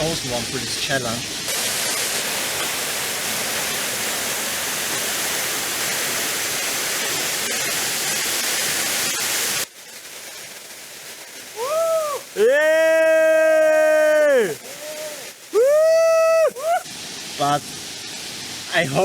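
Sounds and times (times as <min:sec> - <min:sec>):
waterfall roaring: 0:11.2 - 0:19.0.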